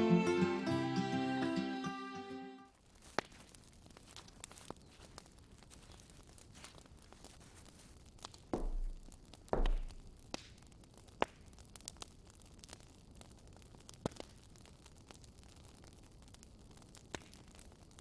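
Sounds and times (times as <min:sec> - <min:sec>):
rustling thumps: 0:03.1 - 0:10.2.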